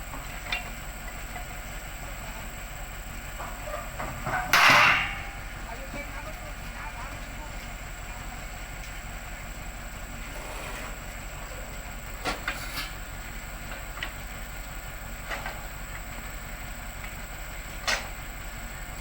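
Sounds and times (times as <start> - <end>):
heavy machinery running: 0.0 - 19.0
sharp metallic knocks: 4.3 - 5.4.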